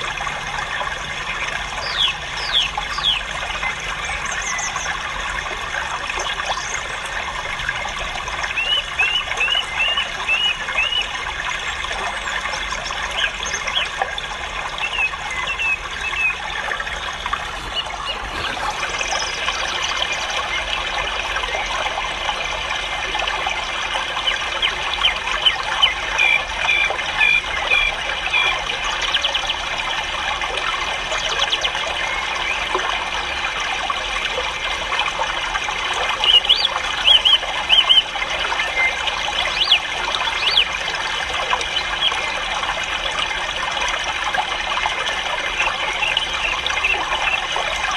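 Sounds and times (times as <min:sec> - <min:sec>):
caged birds chirping: 0:01.8 - 0:03.3, 0:08.5 - 0:11.1, 0:14.8 - 0:20.7, 0:36.2 - 0:38.1, 0:38.7 - 0:40.8.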